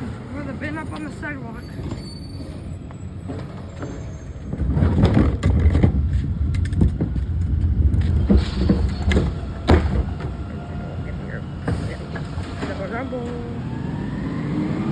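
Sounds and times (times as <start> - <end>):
garbage truck engine rumble: 0.0 - 14.9
sharp knocks and clanks: 3.3 - 10.4.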